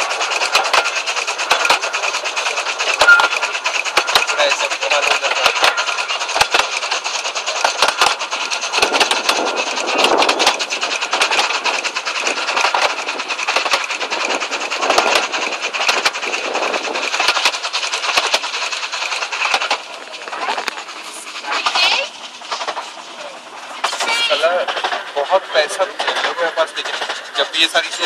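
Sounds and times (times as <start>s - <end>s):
clicks over rail joints: 0.0s - 16.3s
train wheels rattling on track: 0.0s - 28.0s.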